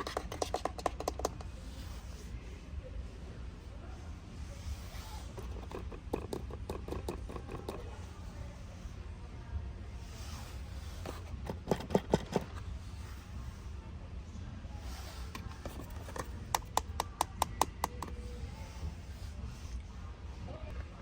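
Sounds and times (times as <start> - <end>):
low steady hum: 0.0 - 21.0
clicks and taps of plastic toys: 0.1 - 1.5, 15.4 - 18.1.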